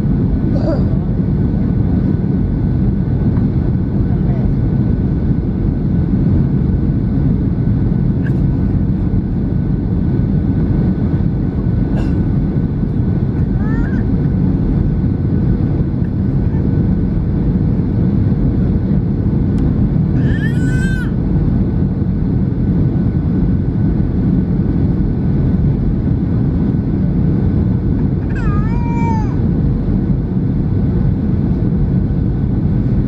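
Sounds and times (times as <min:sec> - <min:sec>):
airplane cabin engine rumble: 0:00.0 - 0:33.0
small child crying: 0:13.6 - 0:14.1, 0:20.2 - 0:21.2, 0:28.3 - 0:29.4.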